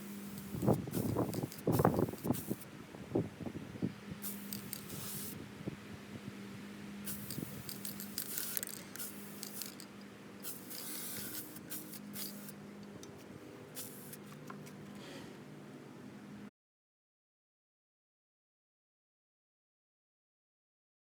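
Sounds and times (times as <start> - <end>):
short spraying hiss: 0.0 - 2.7, 4.2 - 5.4, 7.0 - 12.6, 13.8 - 14.4
steady low hum: 0.0 - 16.5.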